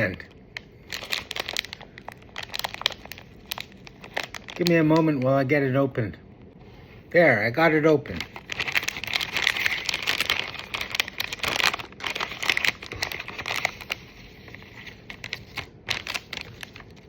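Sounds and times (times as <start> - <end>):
plastic snack bag crinkling: 0.0 - 5.4, 8.1 - 17.0.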